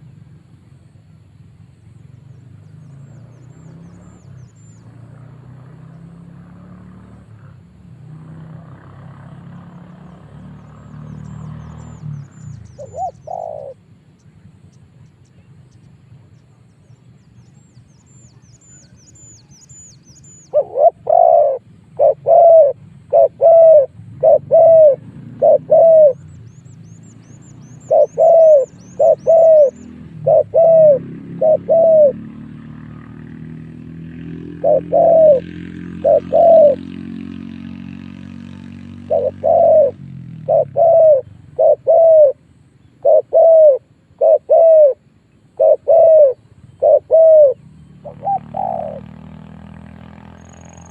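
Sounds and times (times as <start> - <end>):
small bird chirps: 9.7 - 32.1, 50.2 - 50.9
dove cooing: 12.6 - 13.9, 20.4 - 26.4, 27.8 - 37.5, 38.5 - 49.4.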